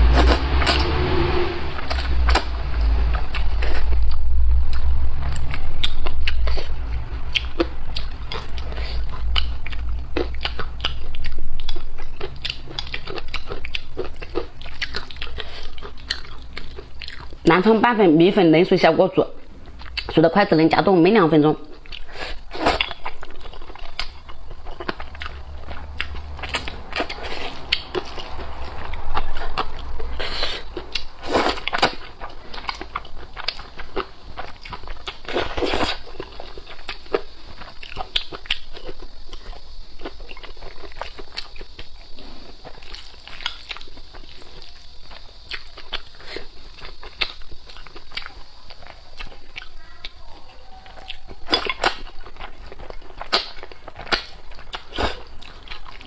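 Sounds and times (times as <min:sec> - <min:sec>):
smacking or slurping: 0:00.0 - 0:01.0
chewing noodles: 0:05.4 - 0:17.4, 0:21.7 - 0:56.0.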